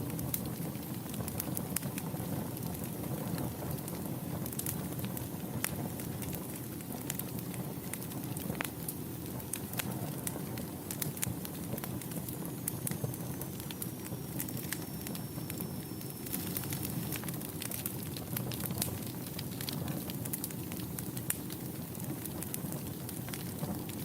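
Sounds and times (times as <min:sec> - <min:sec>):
fire crackling and popping: 0:00.0 - 0:24.0
faint high whistle: 0:12.8 - 0:16.7.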